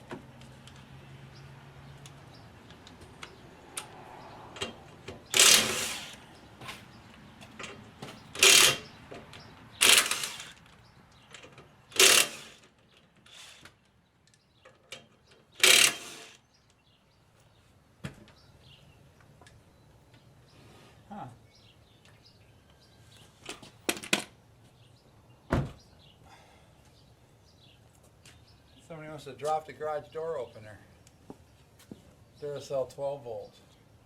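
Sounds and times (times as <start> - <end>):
power tool bursts: 5.3 - 6.2, 8.4 - 8.9, 9.8 - 10.6, 11.9 - 12.6, 13.3 - 13.7, 15.6 - 16.4.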